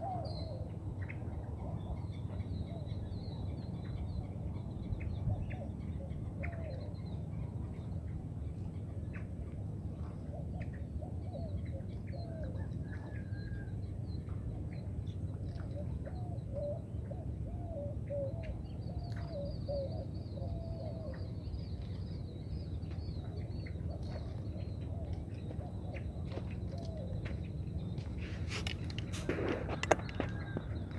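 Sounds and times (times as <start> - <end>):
birds calling low repeated notes: 0.0 - 30.9
steady low rumble: 0.0 - 30.9
sharp knocks and rustles: 28.0 - 30.8.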